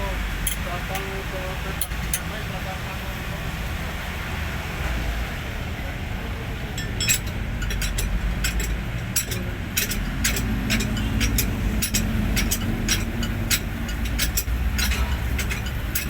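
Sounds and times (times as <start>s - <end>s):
diesel truck engine rumbling: 0.0s - 16.0s
sharp metallic clicks: 1.8s - 2.3s, 6.8s - 16.0s.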